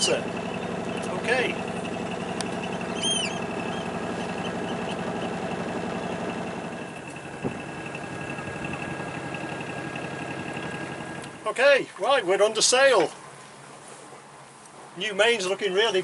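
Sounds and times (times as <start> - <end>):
boat engine running: 0.0 - 11.8.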